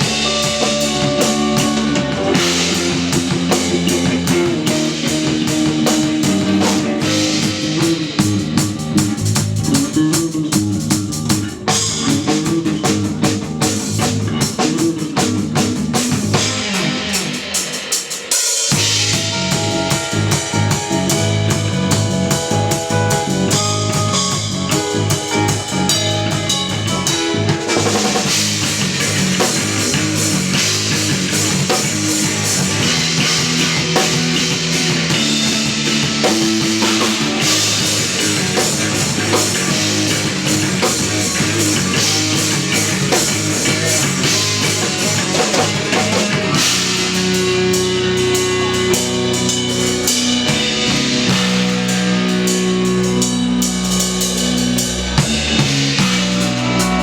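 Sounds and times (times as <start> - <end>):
instrumental rock band playing: 0.0 - 57.0.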